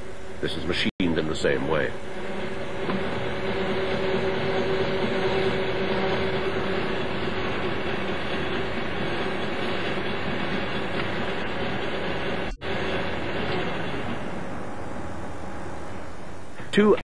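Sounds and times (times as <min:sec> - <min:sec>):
hum: 0:00.0 - 0:17.0
lathe running: 0:01.0 - 0:16.3.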